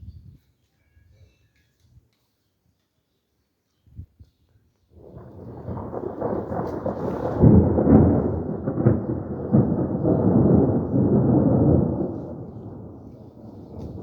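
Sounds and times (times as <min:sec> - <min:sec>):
thunder rumbling with cracks: 0:05.0 - 0:14.0.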